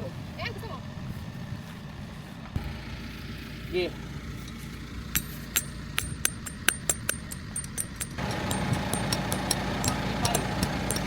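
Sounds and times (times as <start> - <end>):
steady mechanical hum: 0.0 - 11.0
sharp irregular clicks and knocks: 5.2 - 11.0.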